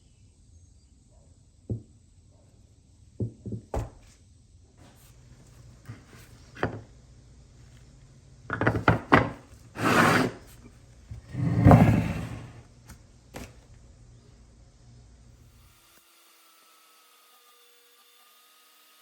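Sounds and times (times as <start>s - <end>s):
scraping slide: 9.8s - 12.6s.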